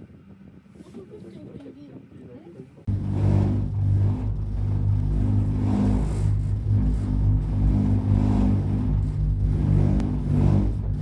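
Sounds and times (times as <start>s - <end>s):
low mechanical drone: 2.8s - 11.0s.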